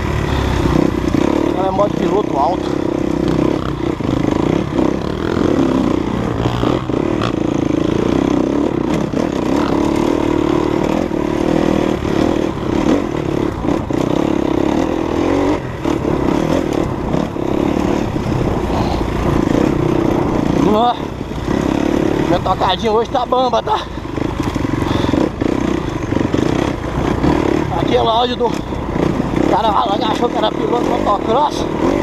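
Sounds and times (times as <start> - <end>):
dirt bike engine: 0.0 - 32.0.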